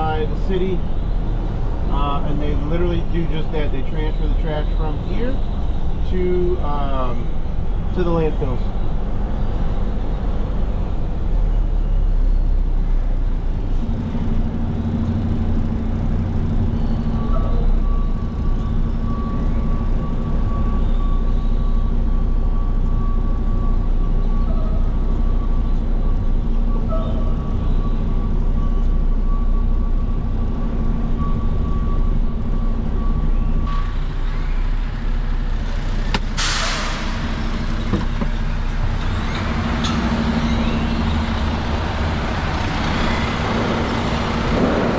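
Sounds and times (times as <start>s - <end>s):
truck diesel engine running: 12.6s - 44.9s
air brake hiss: 36.3s - 37.8s.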